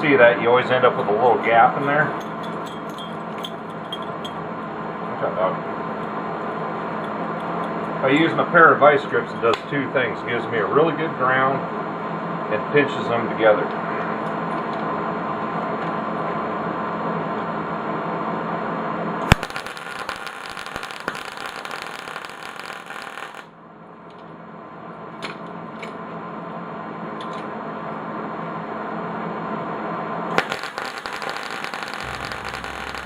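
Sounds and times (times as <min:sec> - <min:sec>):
steady hum: 0:00.0 - 0:33.0
arc welder crackling and sizzling: 0:19.2 - 0:23.5, 0:30.4 - 0:33.0.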